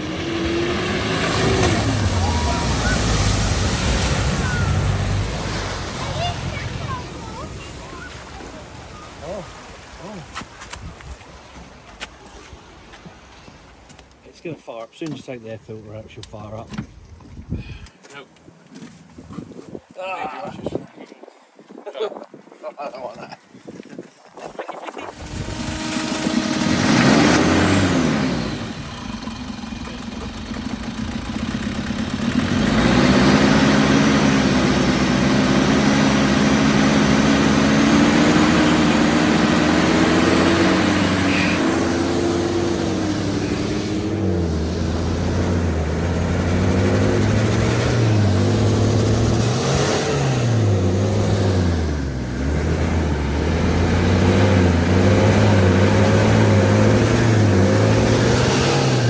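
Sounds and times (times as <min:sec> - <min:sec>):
car engine revving: 0:00.0 - 0:09.6, 0:25.2 - 0:59.0.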